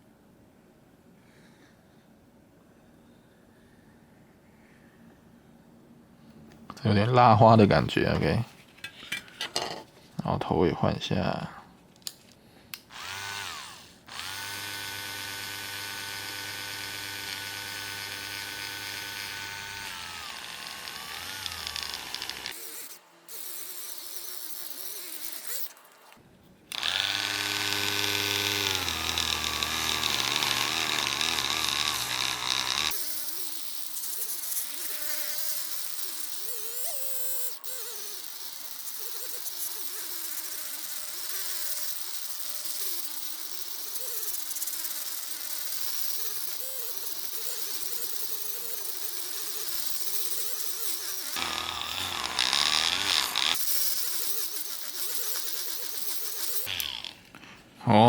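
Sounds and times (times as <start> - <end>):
polishing tool motor whining: 12.9 - 25.9, 26.7 - 57.2.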